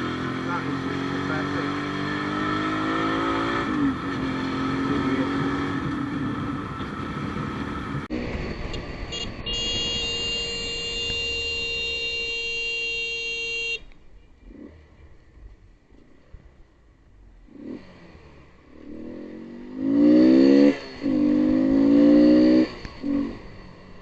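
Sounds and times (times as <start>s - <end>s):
vehicle horn blast: 9.1s - 13.9s.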